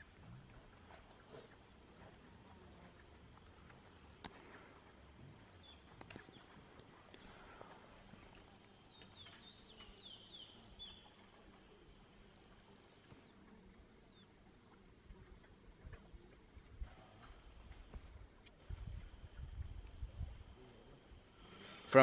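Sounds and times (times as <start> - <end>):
faint rainforest ambience: 0.0 - 22.0
bird chirping: 8.8 - 11.2.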